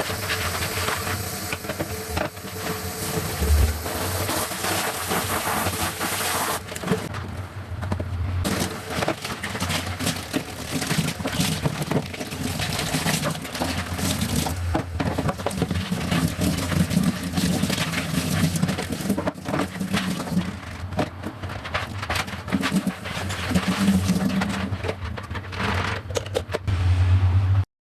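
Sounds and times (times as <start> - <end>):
hissing noise: 0.0 - 6.6
scrubbing: 0.0 - 7.1, 8.5 - 26.1
knocks and clatter of items: 6.6 - 26.7.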